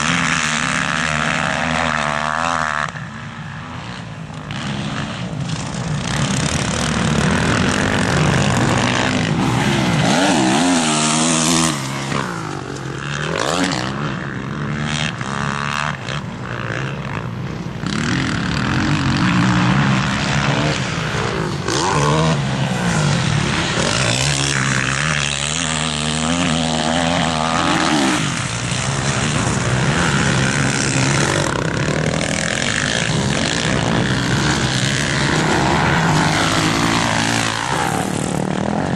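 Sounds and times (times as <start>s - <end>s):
motocross bike engines revving: 0.0s - 38.9s.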